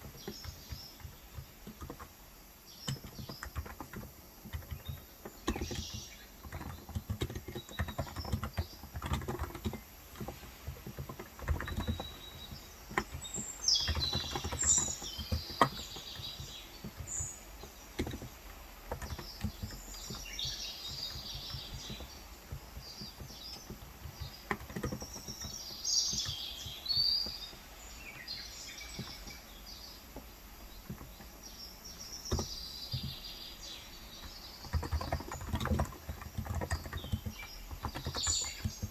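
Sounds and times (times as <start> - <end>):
birds chirping: 0.0 - 38.9
keyboard keystrokes: 34.3 - 38.9.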